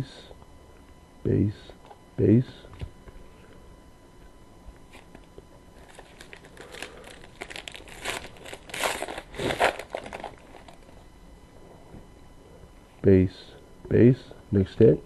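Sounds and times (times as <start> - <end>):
wrapper crinkling: 5.8 - 11.0.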